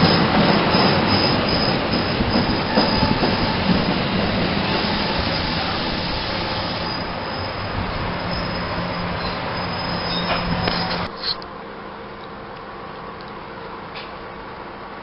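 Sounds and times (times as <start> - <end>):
high wheel squeal: 0.0 - 4.1, 4.7 - 11.4
train wheels on rails: 0.0 - 11.4.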